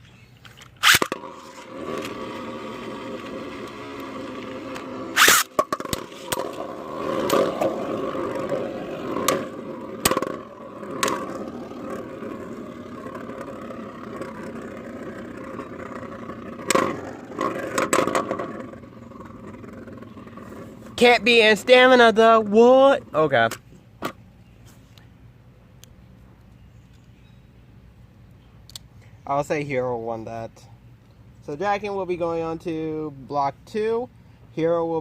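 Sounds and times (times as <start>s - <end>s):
spinning tops whirring and scraping: 0.7s - 21.0s.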